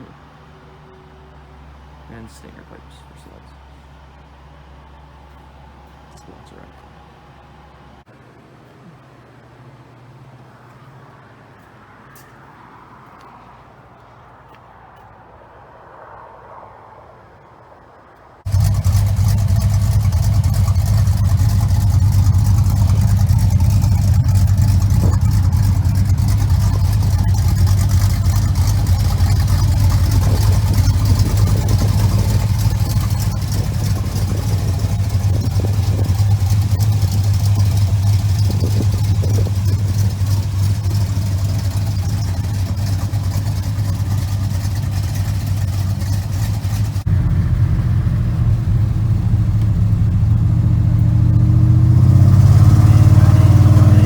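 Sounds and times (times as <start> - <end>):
pickup truck engine running: 18.4 - 54.0.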